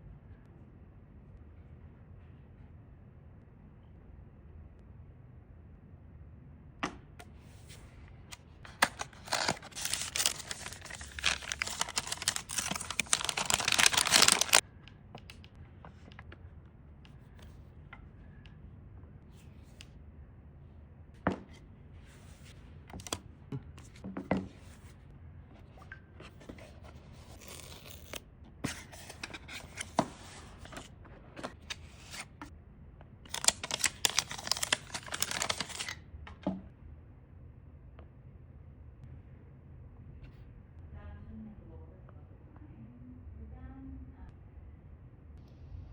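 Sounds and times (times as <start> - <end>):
packaging tearing and rustling: 8.7 - 14.6, 27.2 - 30.0, 33.3 - 36.0.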